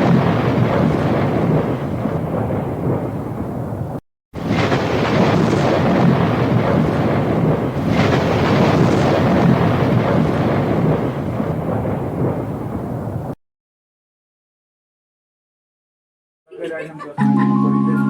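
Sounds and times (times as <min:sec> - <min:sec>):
rain: 0:00.0 - 0:13.4
thunder crashes: 0:00.0 - 0:13.4
thunder rumbling: 0:00.0 - 0:13.4.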